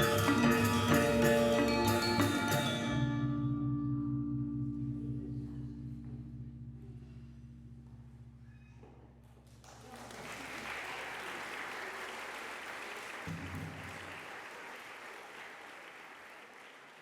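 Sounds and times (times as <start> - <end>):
gamelan ringing: 0.0 - 5.4
audience applause: 9.6 - 17.0.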